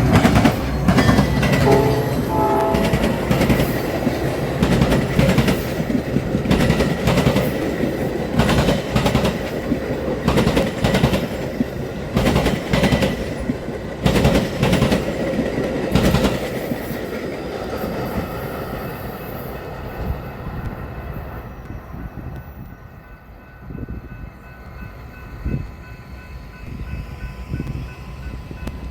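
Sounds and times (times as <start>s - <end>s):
train wheels clacking over crossing: 0.0s - 20.6s
train rolling rumble: 0.0s - 28.9s.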